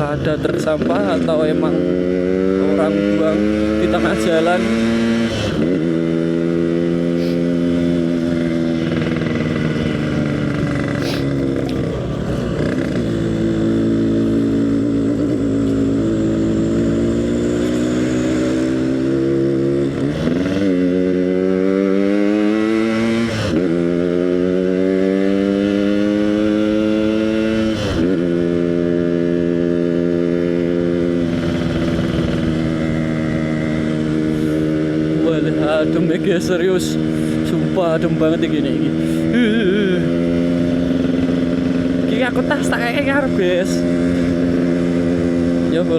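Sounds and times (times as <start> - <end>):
two-stroke motorcycle engine: 0.0 - 45.9.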